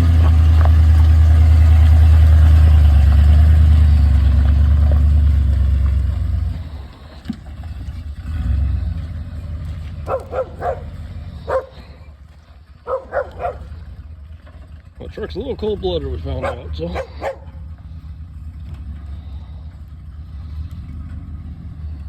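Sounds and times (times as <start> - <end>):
pickup engine rumbling: 0.0 - 22.0
dog barking: 10.1 - 11.8, 12.8 - 13.8, 16.4 - 17.6.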